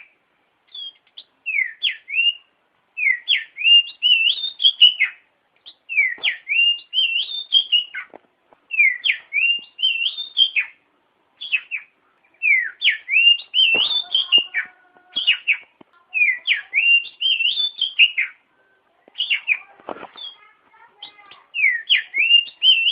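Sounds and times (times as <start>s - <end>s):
bird singing whistled phrase: 0.7s - 8.0s, 8.7s - 10.8s, 11.4s - 18.4s, 19.2s - 20.4s, 21.0s - 22.9s.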